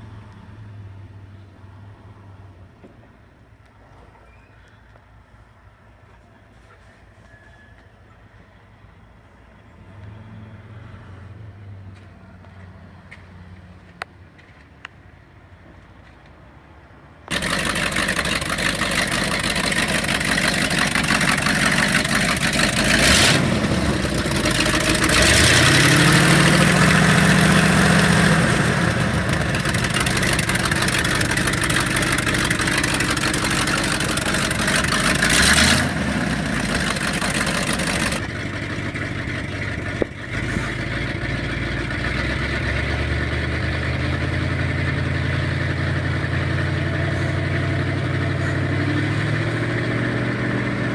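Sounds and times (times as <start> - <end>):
truck engine revving and idling: 17.3 - 50.9.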